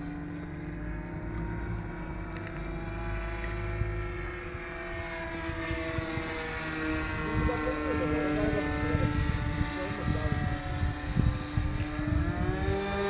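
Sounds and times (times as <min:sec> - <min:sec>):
model airplane motor droning: 0:00.0 - 0:13.0.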